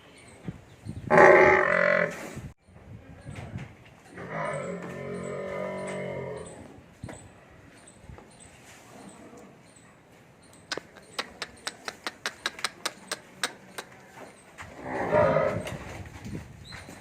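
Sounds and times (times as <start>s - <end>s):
sharp clicks: 10.7s - 14.0s.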